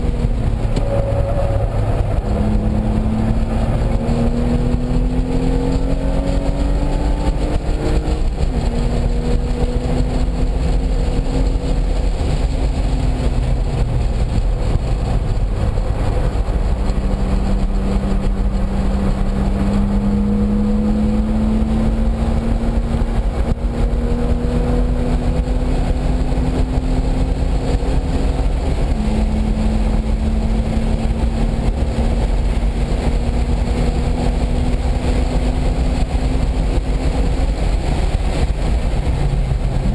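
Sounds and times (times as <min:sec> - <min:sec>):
heavy steady rush of noise: 0:00.0 - 0:39.9
race car engine at full speed: 0:00.0 - 0:39.9.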